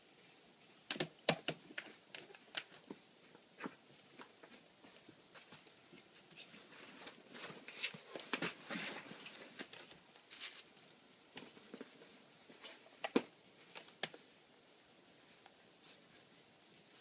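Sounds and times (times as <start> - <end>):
packing materials rustling: 7.0 - 12.0.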